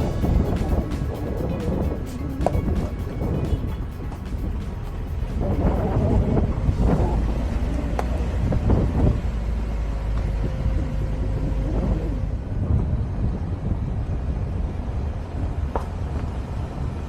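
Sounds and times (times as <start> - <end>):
car engine and road rumble: 0.0 - 17.0
wind noise: 0.0 - 17.0.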